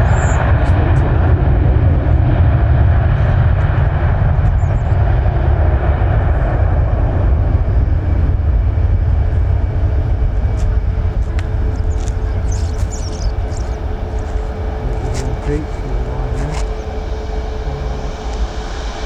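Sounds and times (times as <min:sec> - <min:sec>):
jet airliner engine rumble: 0:00.0 - 0:19.0.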